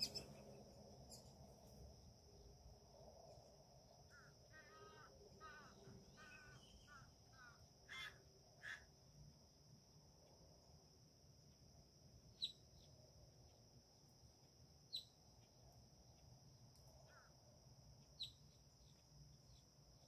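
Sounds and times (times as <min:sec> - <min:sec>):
bird chirping: 0:00.0 - 0:01.4, 0:04.1 - 0:08.8, 0:12.3 - 0:13.0, 0:14.9 - 0:15.5, 0:18.0 - 0:19.7.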